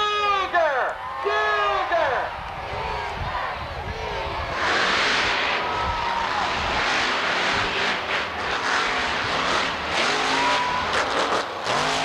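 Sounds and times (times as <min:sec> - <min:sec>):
dense rushing noise: 0:02.2 - 0:11.7
monster truck engines revving: 0:02.6 - 0:12.0.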